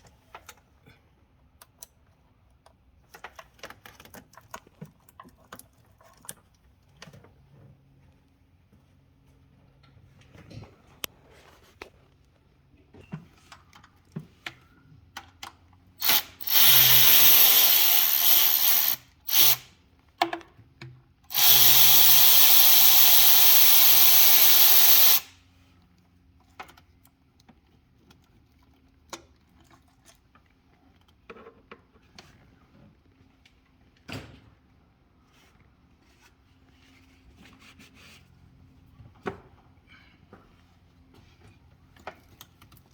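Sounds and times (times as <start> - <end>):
tools clicking and knocking: 15.2 - 19.6
power tool motor running: 16.0 - 19.7, 21.3 - 25.3.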